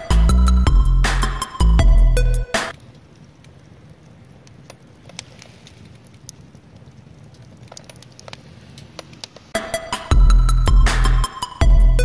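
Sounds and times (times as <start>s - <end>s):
firewood crackling: 0.0s - 12.0s
low rumble of flame: 0.0s - 12.0s
fire pops and snaps: 2.6s - 9.6s.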